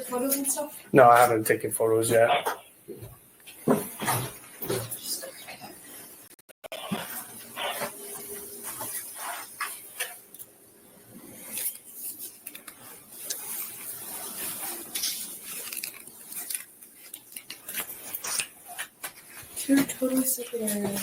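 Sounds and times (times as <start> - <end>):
camera rubbing against clothing: 6.7 - 10.2, 11.3 - 16.4
rustles and scuffs of movement: 7.0 - 10.2.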